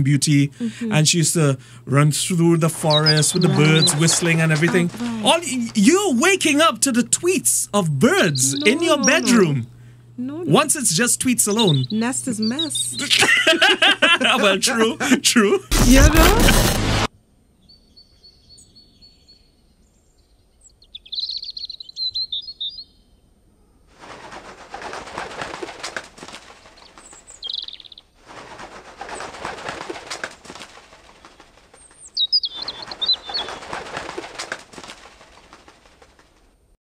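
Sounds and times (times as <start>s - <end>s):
small birds chirping: 2.4s - 6.6s, 7.7s - 13.2s, 17.6s - 23.2s, 26.7s - 28.2s, 31.0s - 34.9s
rustling and flapping: 3.4s - 5.8s, 23.9s - 36.7s.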